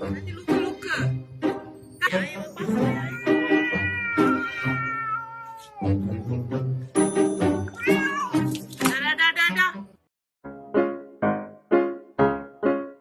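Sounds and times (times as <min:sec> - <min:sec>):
pet crying: 0:02.9 - 0:06.2, 0:07.8 - 0:08.4.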